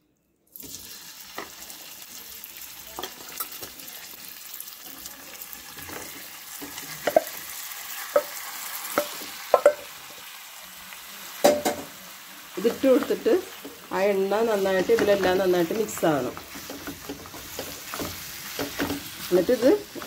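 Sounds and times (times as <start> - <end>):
chicken sizzling in oil: 0.5 - 20.0
utensil tapping and scraping pan: 5.8 - 7.4, 8.1 - 9.9, 11.4 - 11.9, 14.5 - 20.0.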